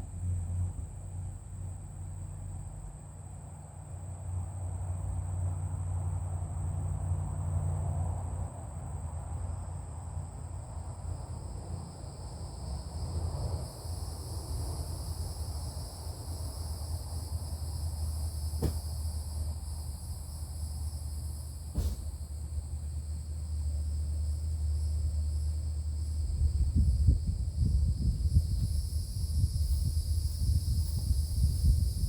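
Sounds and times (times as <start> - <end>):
lower insect chorus: 0.0 - 32.0
insects chirring: 8.9 - 32.0
low steady rumble: 9.9 - 32.0.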